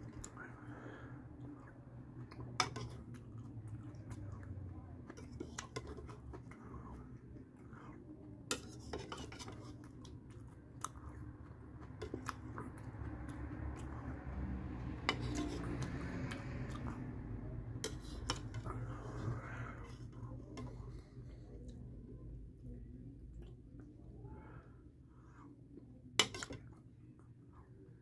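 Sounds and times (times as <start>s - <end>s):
chewing cereal: 0.0s - 17.2s.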